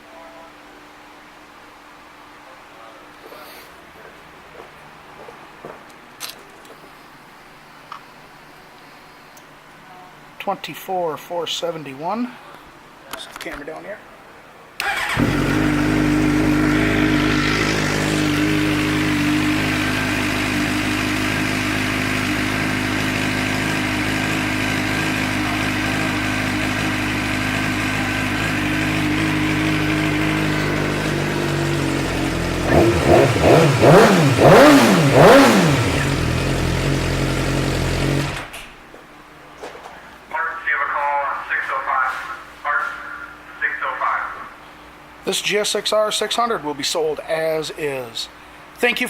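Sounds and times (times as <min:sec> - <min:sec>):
motorcycle engine idling and revving: 0:14.9 - 0:38.6.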